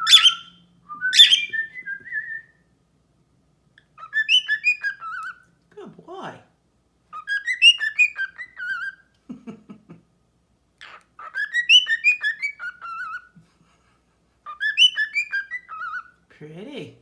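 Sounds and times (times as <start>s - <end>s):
bird whistling a tune: 0.0s - 2.6s, 4.0s - 5.4s, 7.2s - 9.0s, 11.2s - 13.3s, 14.5s - 16.1s
bird chattering: 0.1s - 0.6s, 7.1s - 9.0s.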